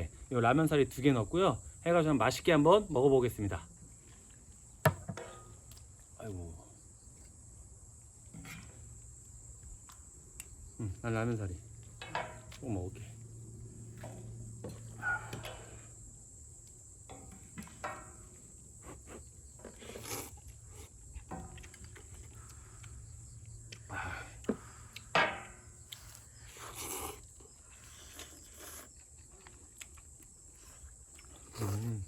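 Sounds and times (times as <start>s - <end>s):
faint insect trill: 0.0s - 32.0s
person slurping: 26.6s - 28.9s.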